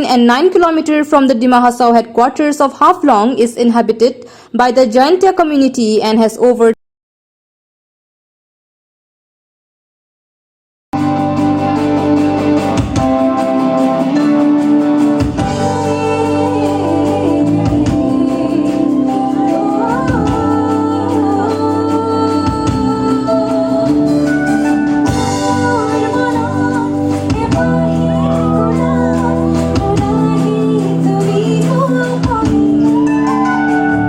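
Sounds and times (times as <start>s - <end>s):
live band playing: 11.0s - 34.0s
person singing: 12.6s - 34.0s.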